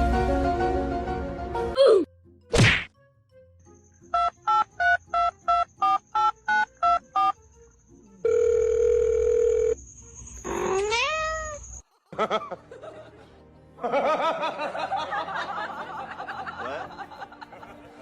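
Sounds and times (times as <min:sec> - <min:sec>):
steady dial tone: 0:08.2 - 0:09.8.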